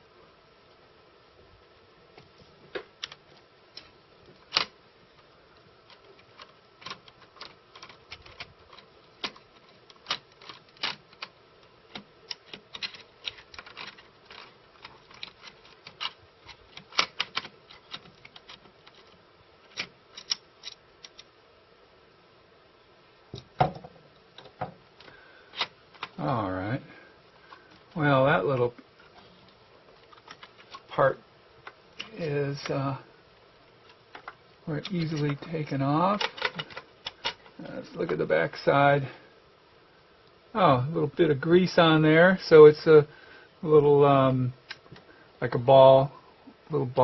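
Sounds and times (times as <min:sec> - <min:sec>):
screwdriver and metal parts clicking: 0:05.9 - 0:21.3, 0:36.1 - 0:37.6.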